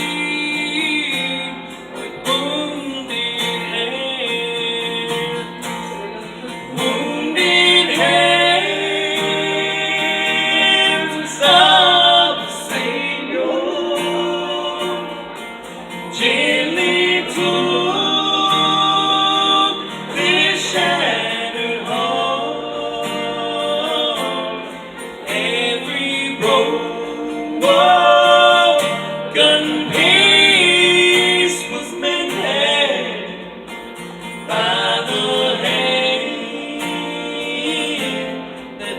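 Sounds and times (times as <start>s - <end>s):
acoustic guitar: 0.0s - 38.9s
gospel singing: 0.0s - 38.9s.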